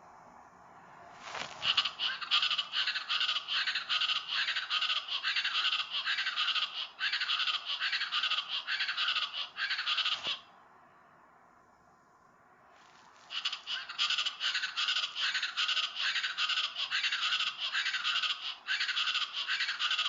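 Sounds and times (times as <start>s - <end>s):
birds calling loudly: 1.2s - 10.5s, 13.2s - 20.0s.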